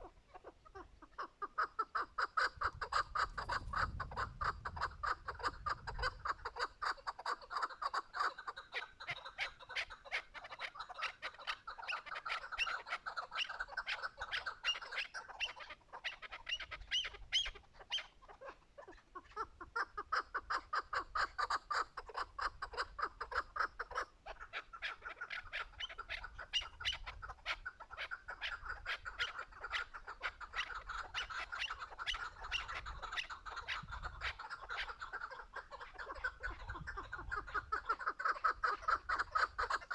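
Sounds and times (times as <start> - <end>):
partridge clucking calls: 0.0 - 39.9.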